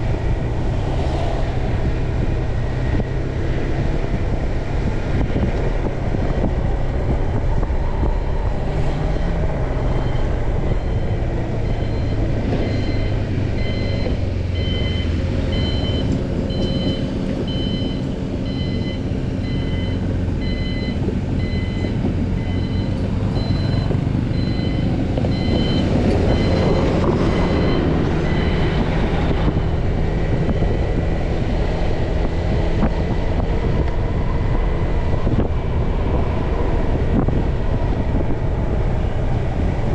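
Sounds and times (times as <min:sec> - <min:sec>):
road and wind noise: 0:00.0 - 0:39.9
electronic beep: 0:09.9 - 0:28.8.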